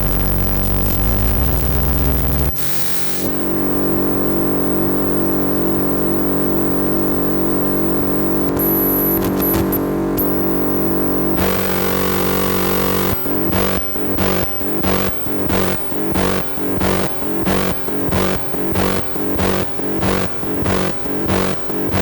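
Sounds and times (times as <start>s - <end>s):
synthesizer drone: 10.2s - 22.0s.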